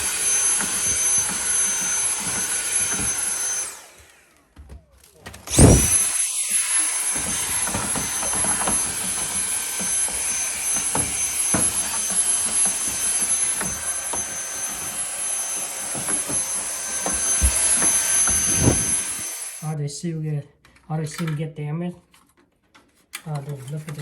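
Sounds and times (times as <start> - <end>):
vacuum cleaner whine: 0.0 - 4.6, 5.3 - 19.8.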